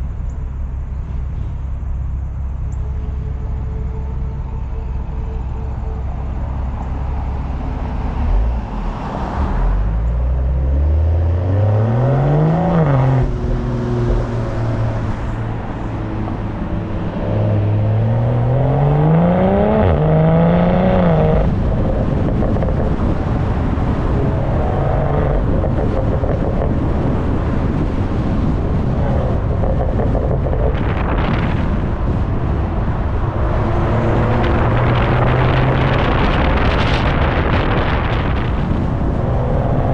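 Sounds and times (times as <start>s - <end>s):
car exhaust accelerating: 0.0s - 39.9s
wind on microphone: 11.1s - 39.9s.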